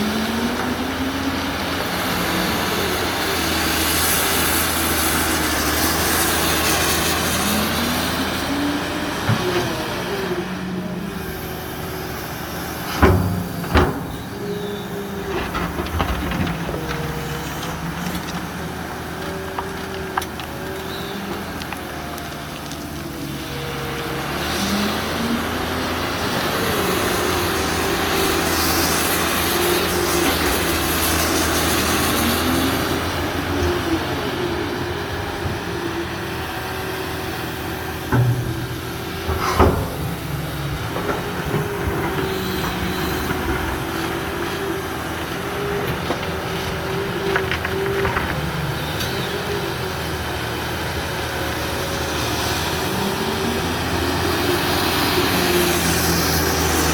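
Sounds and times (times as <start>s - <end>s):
excavator diesel engine: 0.0s - 56.9s
hydraulic whine: 0.0s - 56.9s
metal clanks: 12.8s - 21.1s, 37.4s - 49.2s.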